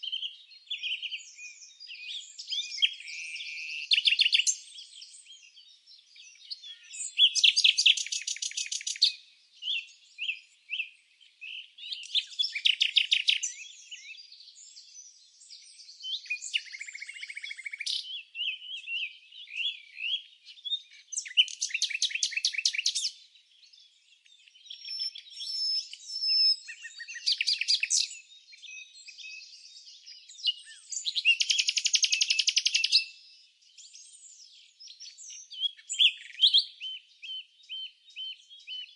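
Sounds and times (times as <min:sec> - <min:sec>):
bird chirps and whistles: 0:06.4 - 0:10.9, 0:16.0 - 0:23.1, 0:24.7 - 0:29.6, 0:30.3 - 0:33.1, 0:34.8 - 0:38.9
loud fast bird trill: 0:06.7 - 0:09.2.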